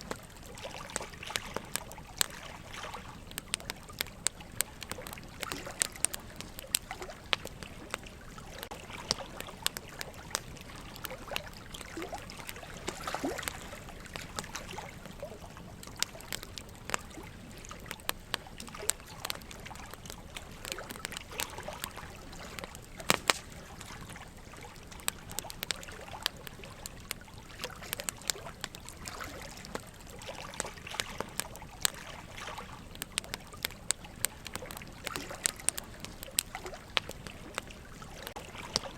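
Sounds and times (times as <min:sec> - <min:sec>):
burning logs crackling: 0:00.0 - 0:38.9
running water trickling: 0:00.0 - 0:38.9.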